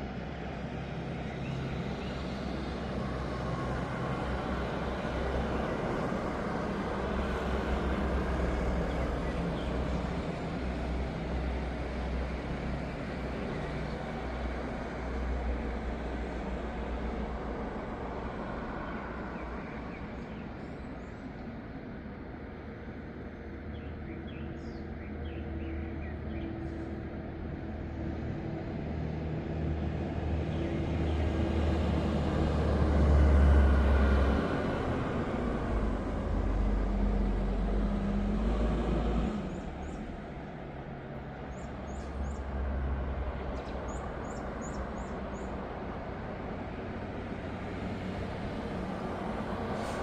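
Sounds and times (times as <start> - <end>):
motor vehicle passing: 29.0 - 40.5
small birds chirping: 41.5 - 42.4, 43.5 - 45.5.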